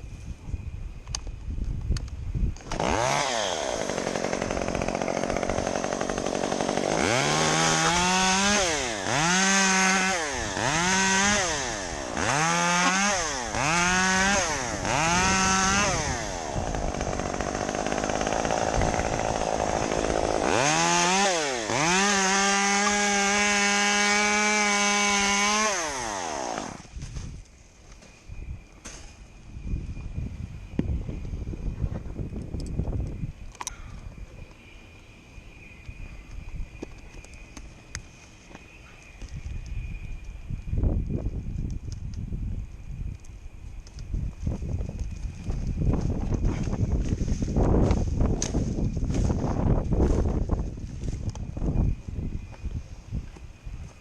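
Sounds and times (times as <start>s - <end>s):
chainsaw revving: 2.7s - 26.9s.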